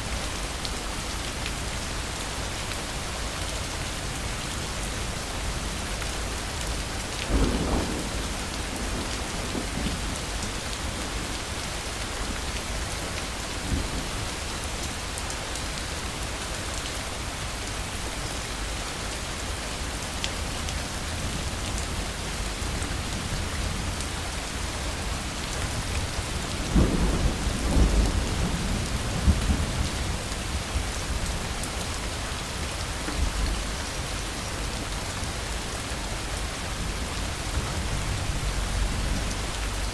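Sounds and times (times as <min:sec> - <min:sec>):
heavy rain falling: 0:00.0 - 0:39.9
thunder rumbling: 0:07.3 - 0:10.1.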